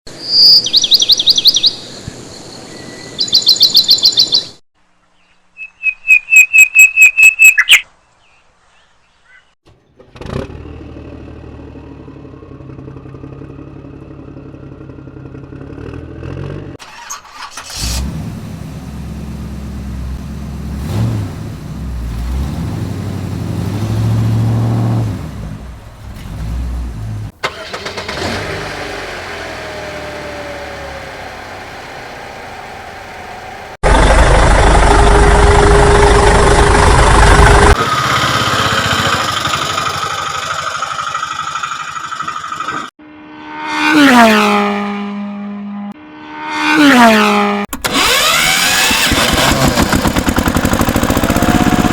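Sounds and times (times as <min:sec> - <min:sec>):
high chirping pulsing tones: 0:00.2 - 0:04.6, 0:05.5 - 0:07.9
vehicle engine running: 0:10.0 - 0:16.8, 0:17.8 - 0:42.9, 0:47.9 - 0:51.9.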